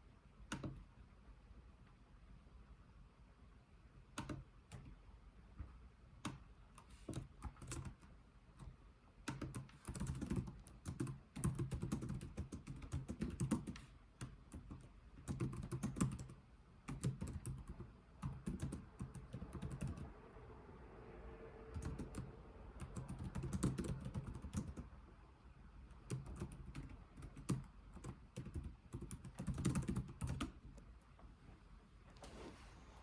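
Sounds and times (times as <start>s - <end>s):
keyboard typing: 0.5s - 0.9s, 4.1s - 5.0s, 6.2s - 20.1s, 21.7s - 24.9s, 25.9s - 30.8s.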